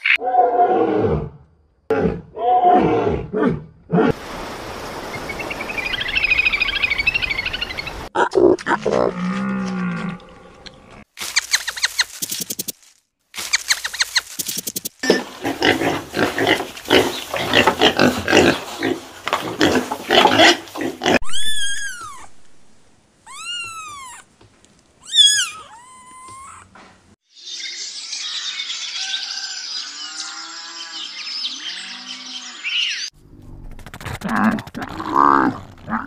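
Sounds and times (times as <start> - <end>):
pigs grunting and squealing: 8.2 - 11.0, 15.0 - 22.3, 33.9 - 36.0
cat meowing: 21.2 - 22.4, 23.3 - 24.3, 25.0 - 26.7.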